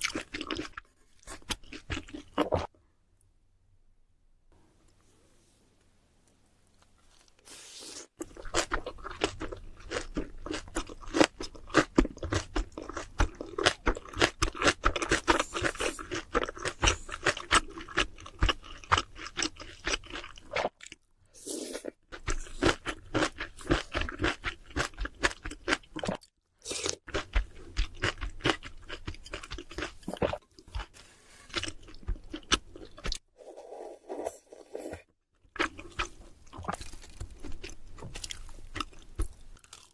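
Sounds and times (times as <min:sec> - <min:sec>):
chewing crispy fried food: 0:08.2 - 0:21.1, 0:21.9 - 0:30.9, 0:31.5 - 0:33.2, 0:35.4 - 0:39.9.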